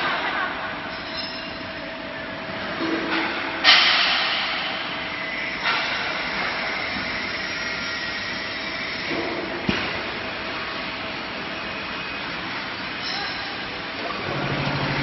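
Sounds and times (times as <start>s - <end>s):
frying machinery hiss and hum: 1.8s - 13.0s.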